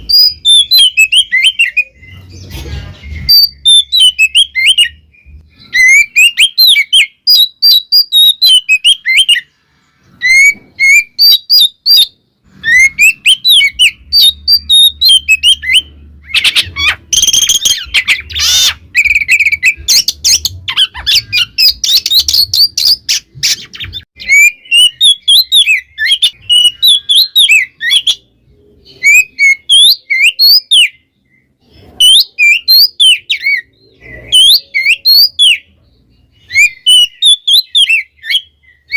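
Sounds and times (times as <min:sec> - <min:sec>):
bird singing whistled notes: 0:00.0 - 0:02.4, 0:03.0 - 0:09.5, 0:10.2 - 0:23.2, 0:23.8 - 0:38.9.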